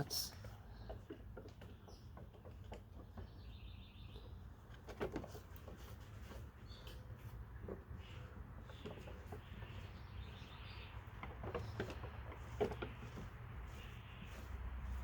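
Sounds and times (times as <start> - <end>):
faint bird calls and chirps: 6.2 - 15.0.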